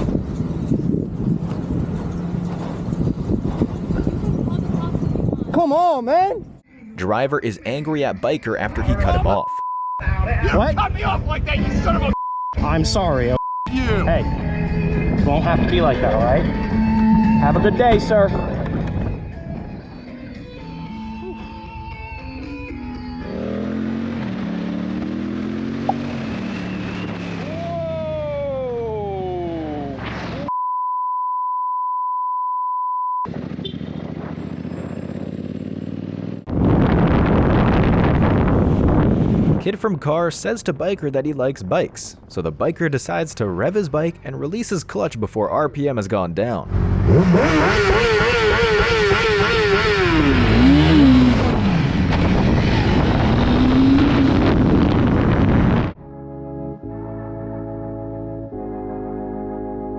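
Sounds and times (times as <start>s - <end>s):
wind noise rushing: 0.0s - 2.0s, 2.7s - 6.6s, 36.5s - 39.8s, 50.3s - 56.0s
censor bleep: 9.1s - 10.0s, 12.1s - 12.6s, 13.3s - 13.7s, 30.5s - 33.3s
motorcycle engine revving: 23.1s - 28.5s, 33.3s - 37.3s, 46.7s - 56.0s
engine running: 33.3s - 36.7s
organ music: 56.0s - 59.9s.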